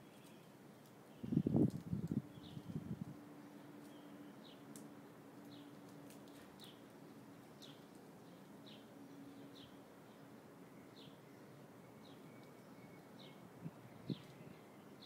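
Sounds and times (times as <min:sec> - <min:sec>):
small bird chirping: 0:00.0 - 0:02.8.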